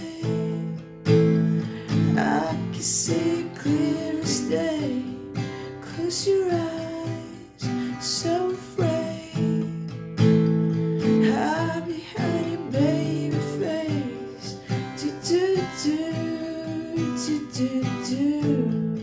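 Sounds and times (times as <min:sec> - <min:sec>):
person singing: 0:00.0 - 0:00.8, 0:01.7 - 0:10.0, 0:11.0 - 0:19.0
acoustic guitar strumming chords: 0:00.0 - 0:19.0.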